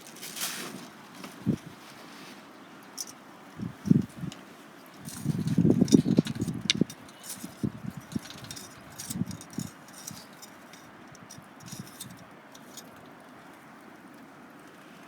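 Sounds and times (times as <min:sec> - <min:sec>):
light knocks and clinks: 0:05.0 - 0:13.0.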